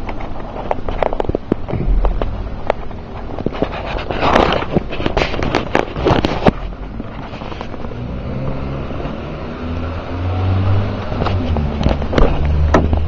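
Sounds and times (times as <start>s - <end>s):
sharp knocks or rattles: 1.1s - 3.7s.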